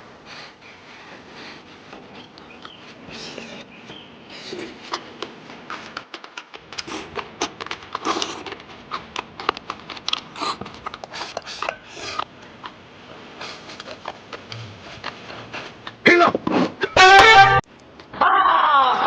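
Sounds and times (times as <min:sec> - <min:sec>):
crunching and chewing: 0:01.4 - 0:16.0.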